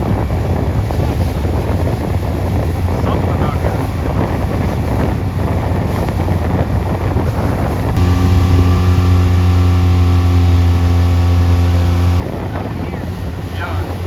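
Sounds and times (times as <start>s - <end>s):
wind buffeting microphone: 0.0s - 14.0s
motorboat engine drone: 6.4s - 12.3s.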